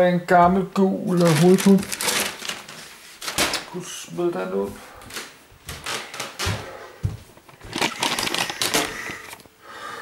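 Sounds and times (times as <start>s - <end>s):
bag crinkling rustle: 1.1s - 3.6s, 7.4s - 9.5s.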